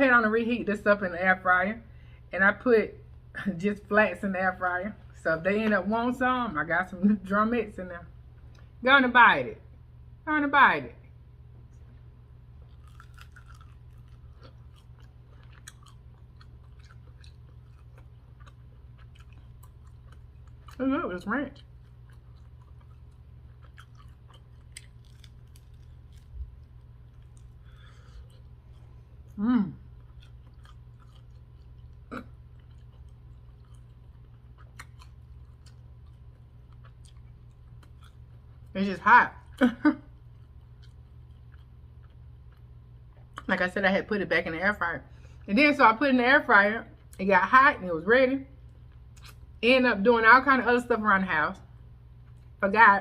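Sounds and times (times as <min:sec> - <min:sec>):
low steady hum: 0:00.0 - 0:53.0
chewing crispy chicken: 0:11.7 - 0:43.7, 0:48.6 - 0:49.6
person humming: 0:29.4 - 0:29.8.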